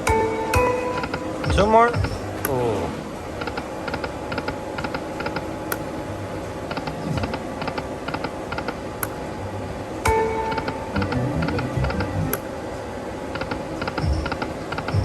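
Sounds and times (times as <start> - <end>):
casino background din: 0.1 - 3.7.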